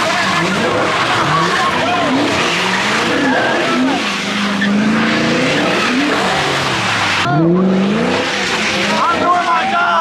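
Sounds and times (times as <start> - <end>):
tyres skidding on pavement: 0.0 - 7.3
car engine revving: 0.0 - 9.5.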